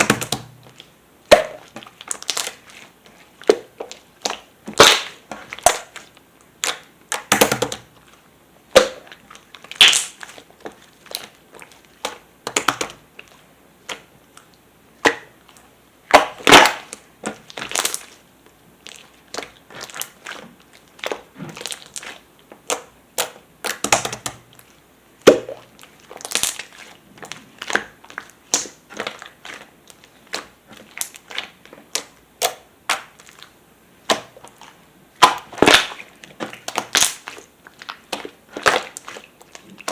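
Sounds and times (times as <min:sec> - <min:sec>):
slime popping and clicking: 0:09.7 - 0:10.2, 0:22.7 - 0:24.4.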